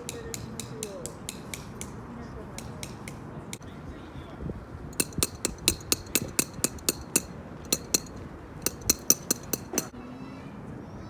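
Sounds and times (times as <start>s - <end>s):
sharp metallic taps: 0.0s - 2.0s, 2.6s - 3.6s, 4.9s - 9.9s.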